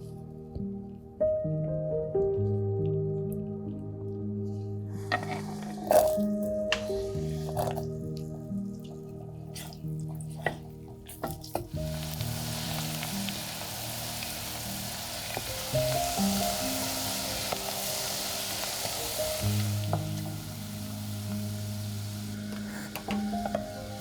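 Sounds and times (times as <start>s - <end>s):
food sizzling in a pan: 5.2s - 7.8s, 9.6s - 24.0s.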